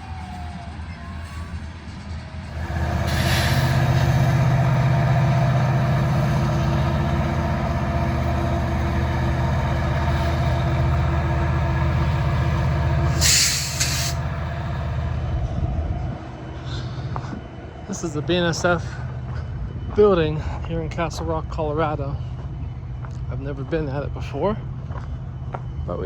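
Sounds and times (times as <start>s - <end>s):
locomotive engine drone: 0.0s - 26.0s
air hiss: 3.0s - 4.1s, 13.1s - 14.2s.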